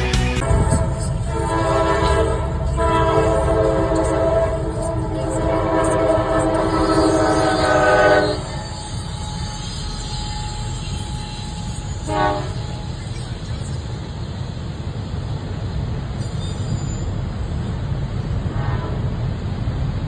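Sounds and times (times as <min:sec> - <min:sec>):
locomotive horn blast: 0:00.0 - 0:13.0, 0:18.4 - 0:19.2
train wheels rumbling on rail: 0:00.0 - 0:20.0.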